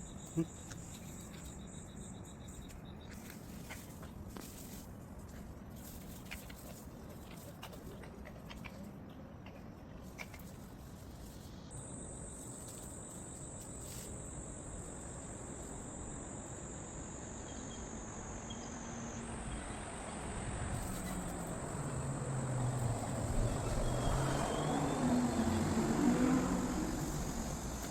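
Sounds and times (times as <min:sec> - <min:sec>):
insects trilling: 0:00.0 - 0:04.0, 0:10.2 - 0:27.9
motor vehicle approaching: 0:17.8 - 0:27.9.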